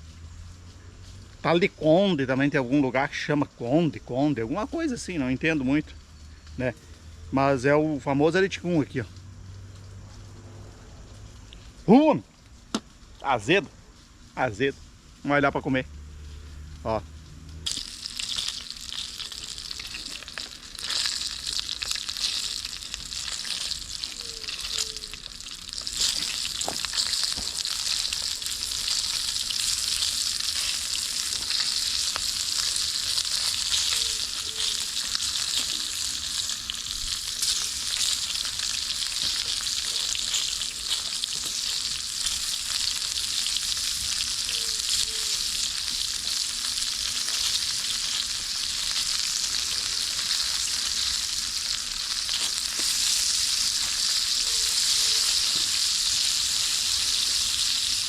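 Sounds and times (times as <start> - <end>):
food sizzling in a pan: 17.6 - 58.0.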